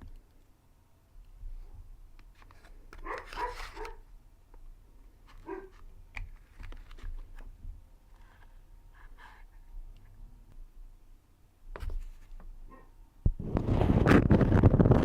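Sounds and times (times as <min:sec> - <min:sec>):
dog barking: 0:03.0 - 0:04.0, 0:05.4 - 0:05.8, 0:12.7 - 0:12.9.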